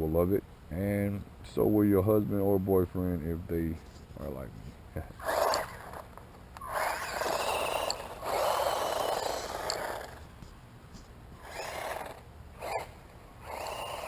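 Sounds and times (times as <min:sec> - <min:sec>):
electric motor whining: 0:05.2 - 0:10.3, 0:11.4 - 0:14.0.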